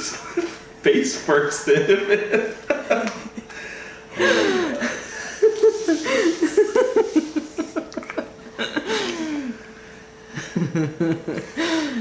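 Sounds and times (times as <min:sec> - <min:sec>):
person laughing: 0:02.0 - 0:03.6, 0:04.2 - 0:09.6, 0:10.3 - 0:12.0.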